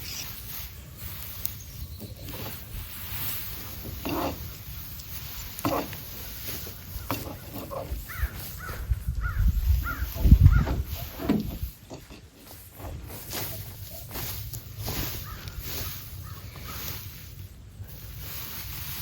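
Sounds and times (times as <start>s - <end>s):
bird calling: 6.7s - 11.4s, 14.9s - 17.2s.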